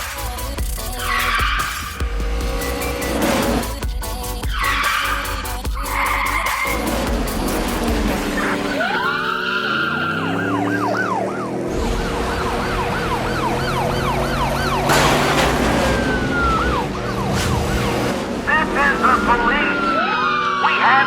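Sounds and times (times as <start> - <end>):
car engine: 0.0 - 21.0
police siren yelping: 8.1 - 21.0.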